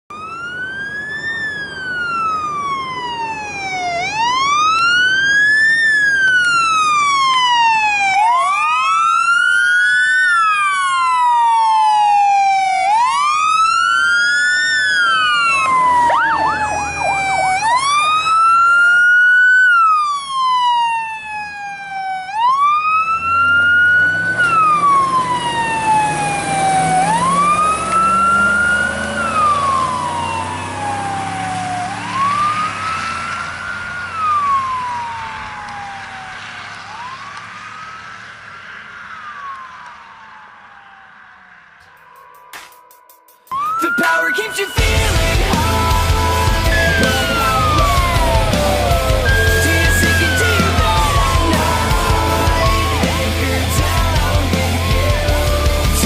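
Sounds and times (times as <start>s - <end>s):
fire truck sirens wailing: 0.0s - 42.2s, 43.5s - 56.0s
siren yelp: 0.1s - 42.5s, 43.4s - 56.0s
heavy truck engine: 23.0s - 40.2s, 44.8s - 56.0s
road noise hiss: 23.1s - 42.0s, 44.8s - 56.0s.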